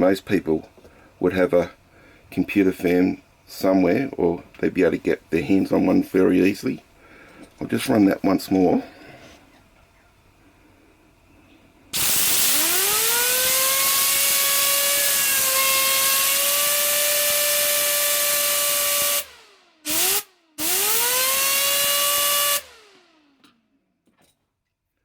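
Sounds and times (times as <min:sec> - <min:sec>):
fan whine: 0:00.0 - 0:23.6
hiss of blown air: 0:11.9 - 0:19.3.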